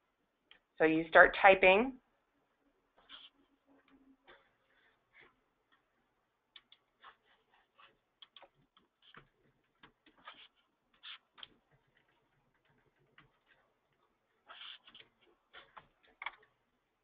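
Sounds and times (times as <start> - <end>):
faint keyboard typing: 7.8 - 14.0.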